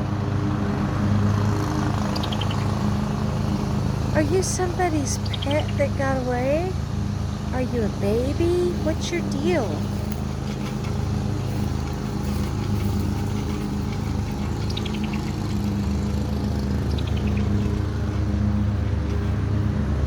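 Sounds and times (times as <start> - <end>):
low motor hum: 0.0 - 20.0
bird chirping: 2.0 - 2.9, 4.2 - 10.2, 10.8 - 18.2.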